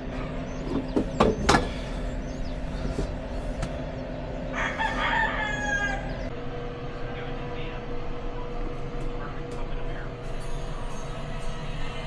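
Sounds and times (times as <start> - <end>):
steady low hum: 0.0 - 12.0
rooster crowing: 4.4 - 6.3.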